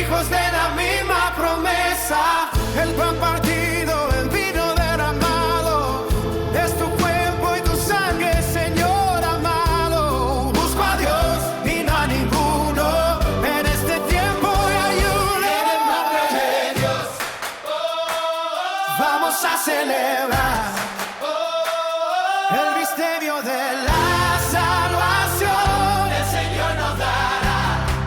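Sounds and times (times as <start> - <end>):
voices singing worship song: 0.0 - 28.0
backing band: 2.6 - 15.9, 23.9 - 28.0.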